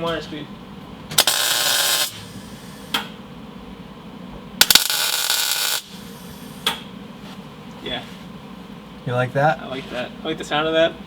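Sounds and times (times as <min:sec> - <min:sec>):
mig welder welding sheet metal: 0:01.1 - 0:03.0, 0:04.6 - 0:06.6
welder click: 0:01.2 - 0:02.2, 0:04.6 - 0:06.0.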